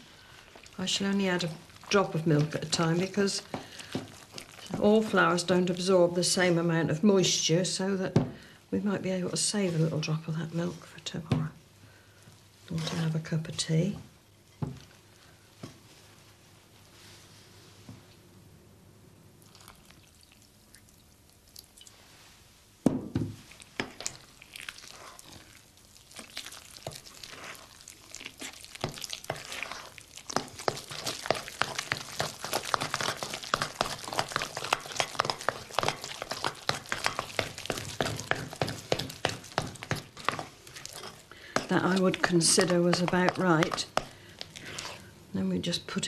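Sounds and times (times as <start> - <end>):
spoon mixing batter in bowl: 0.4 - 5.9, 23.4 - 45.1.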